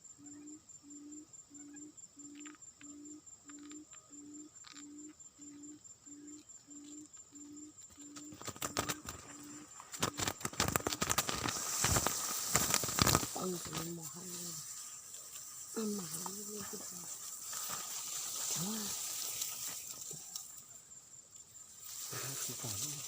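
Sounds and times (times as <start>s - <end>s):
low cooing bird call: 0.2s - 11.0s
rustling and crackling: 7.8s - 20.7s.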